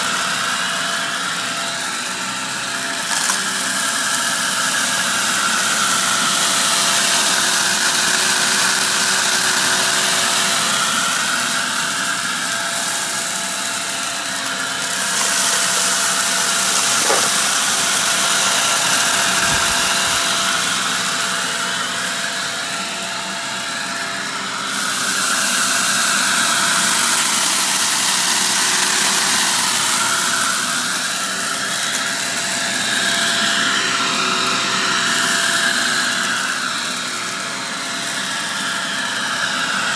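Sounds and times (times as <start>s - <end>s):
vacuum cleaner running: 0.0s - 39.9s
dirt crunching: 14.9s - 17.9s.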